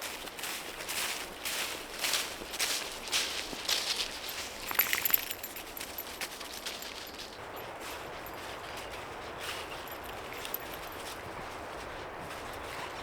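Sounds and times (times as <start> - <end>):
footsteps on forest floor: 0.0 - 12.9.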